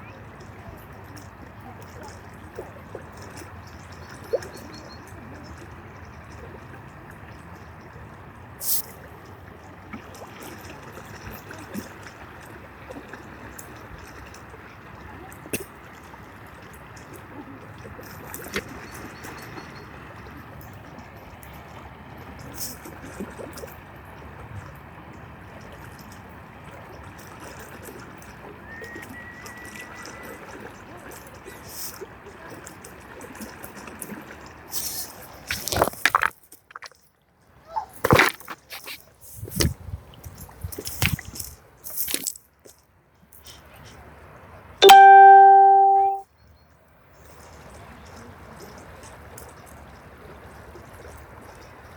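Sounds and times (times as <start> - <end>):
river water running: 0.0 - 46.2, 47.4 - 51.9
sharp water splashes: 44.8 - 46.2.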